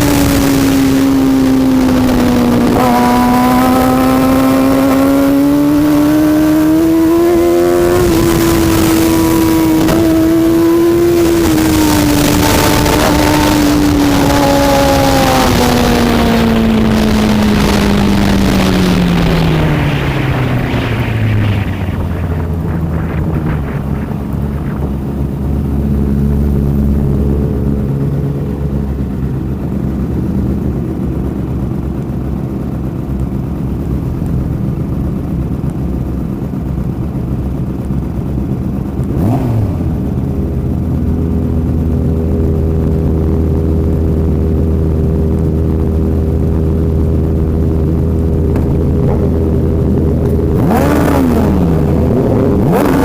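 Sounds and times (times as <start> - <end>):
motorcycle passing by: 0.0 - 29.0
motorcycle engine drone: 0.0 - 53.0.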